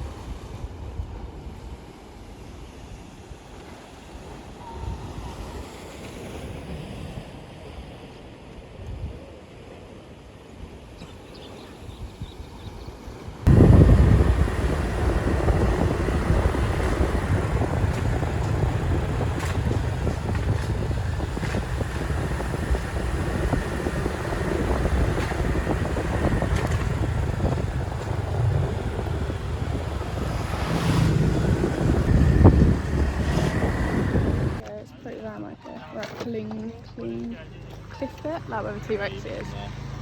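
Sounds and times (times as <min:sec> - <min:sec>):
wind buffeting microphone: 0:11.9 - 0:34.6
road noise: 0:13.2 - 0:35.4, 0:36.0 - 0:40.0
motorcycle engine: 0:13.5 - 0:34.6.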